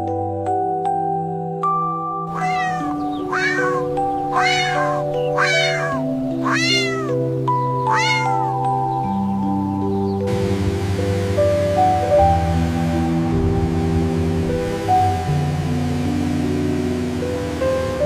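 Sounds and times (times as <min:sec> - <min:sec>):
soft keyboard music: 0:00.0 - 0:18.0
cat meowing: 0:02.3 - 0:08.7.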